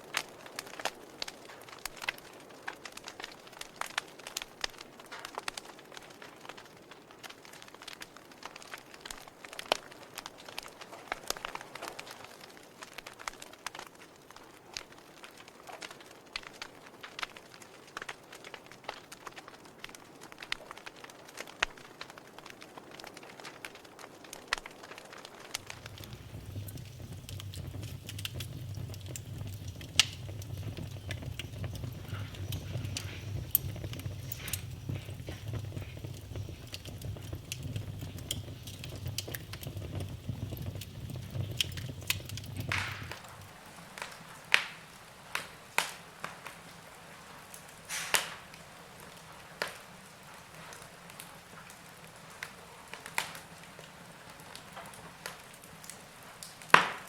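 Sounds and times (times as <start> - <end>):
wood fire crackling and popping: 0.0 - 57.0
low rumble: 25.6 - 43.4.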